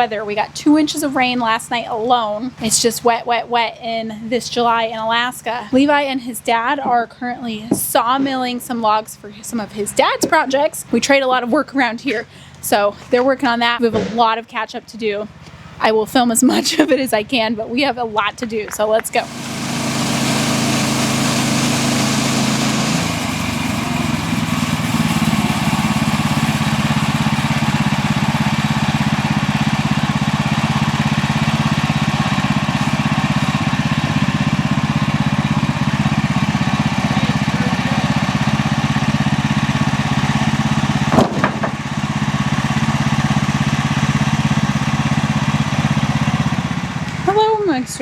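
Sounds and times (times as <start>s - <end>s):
gasoline engine running: 0.0s - 48.0s
brief knock: 41.1s - 41.8s.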